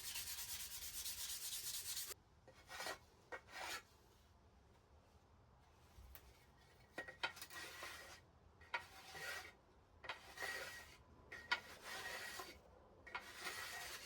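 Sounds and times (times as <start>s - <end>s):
abrasive rubbing on wood: 0.0s - 2.2s.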